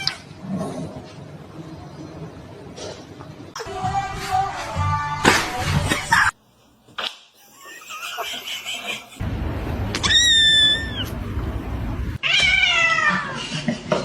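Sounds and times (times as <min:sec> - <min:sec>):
cat meowing: 0:10.0 - 0:11.2, 0:12.2 - 0:13.4.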